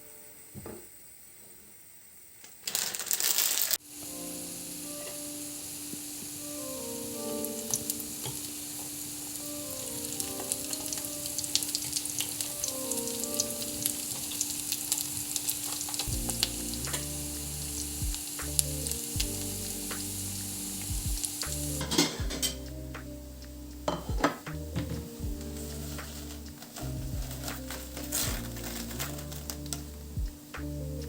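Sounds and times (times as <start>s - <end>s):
food sizzling in a pan: 2.6s - 22.6s.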